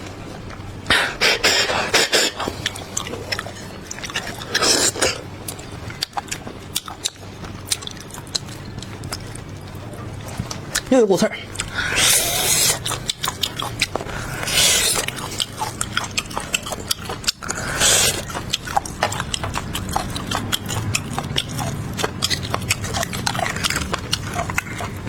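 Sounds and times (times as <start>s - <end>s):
wet chewing and mouth clicks: 0.0s - 25.0s
slurps: 0.9s - 5.2s, 17.5s - 18.4s.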